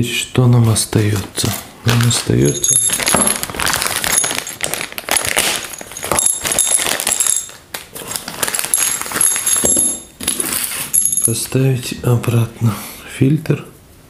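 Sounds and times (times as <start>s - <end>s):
metal tools clinking and rattling: 2.4s - 7.6s, 8.5s - 11.6s.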